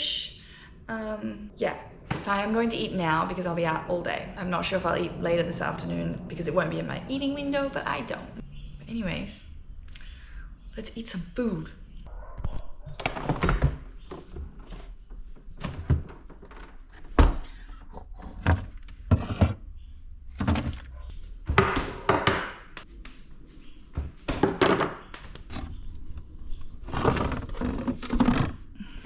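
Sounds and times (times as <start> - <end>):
kitchen thunks and knocks: 20.4 - 22.7, 24.3 - 25.0.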